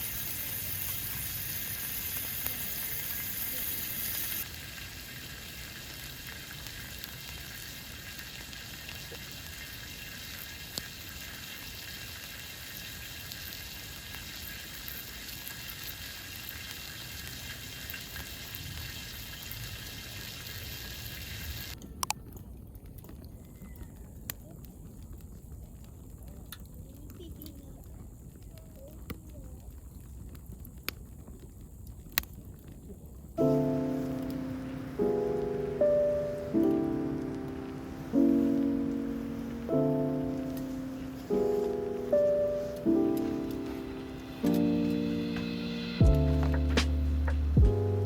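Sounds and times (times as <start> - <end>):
food sizzling in a pan: 0.0 - 21.8, 33.4 - 48.0
outdoor background: 0.0 - 48.0.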